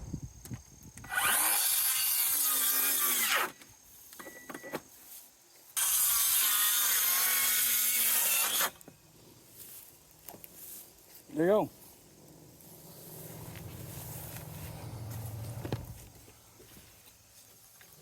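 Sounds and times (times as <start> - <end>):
power drill driving into wood: 1.0 - 3.6, 5.8 - 8.8.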